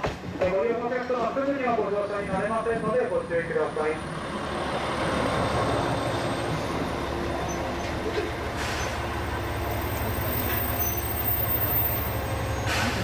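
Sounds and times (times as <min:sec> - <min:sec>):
train engine rumbling: 0:00.2 - 0:13.0
faint high squeaks: 0:09.7 - 0:13.0.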